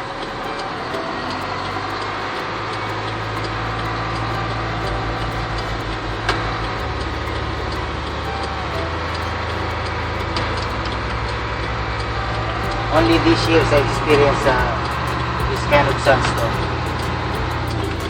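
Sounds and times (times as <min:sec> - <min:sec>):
car engine hum: 0:00.0 - 0:18.0
faint regular ticking: 0:12.6 - 0:18.0.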